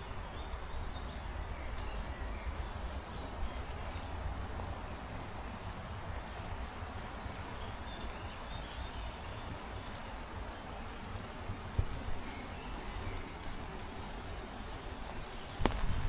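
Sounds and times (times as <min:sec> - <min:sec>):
heavy rain hissing: 0:03.7 - 0:16.0
wind rumbling on microphone: 0:11.3 - 0:16.0.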